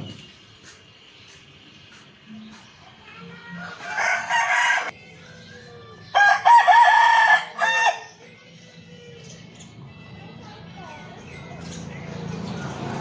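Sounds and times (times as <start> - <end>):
rooster crowing: 3.6 - 4.9, 6.1 - 8.1.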